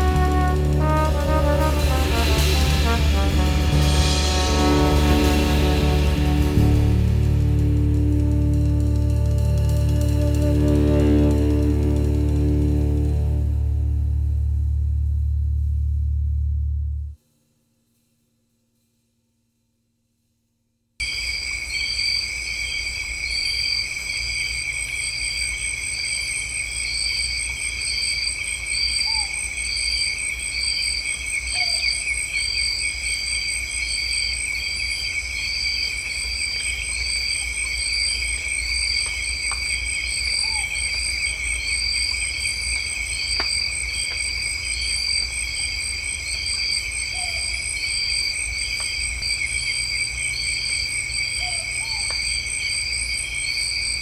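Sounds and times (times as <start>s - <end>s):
insect chirping: 21.0s - 54.0s
insects droning shrilly: 21.0s - 54.0s
faint bird calls: 51.3s - 52.4s.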